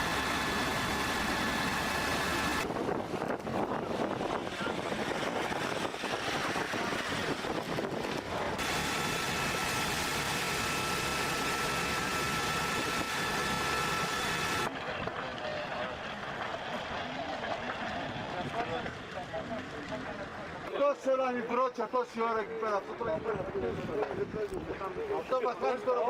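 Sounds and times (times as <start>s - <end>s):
engine noise: 0.0s - 20.7s
high multi-tone whine: 8.5s - 14.8s.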